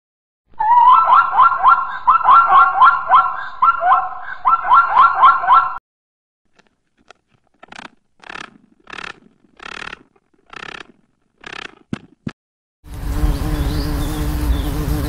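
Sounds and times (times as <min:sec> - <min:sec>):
raspy scratching sounds: 0:06.5 - 0:12.1.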